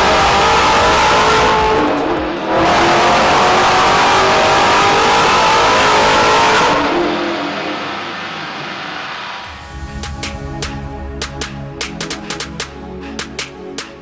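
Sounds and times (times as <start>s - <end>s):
car engine revving: 0.0s - 9.7s.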